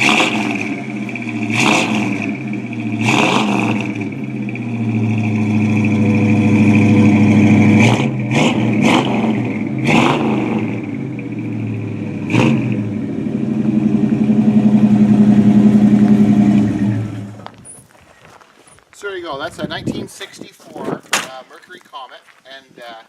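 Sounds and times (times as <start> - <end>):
engine idling and revving: 0.0 - 17.6.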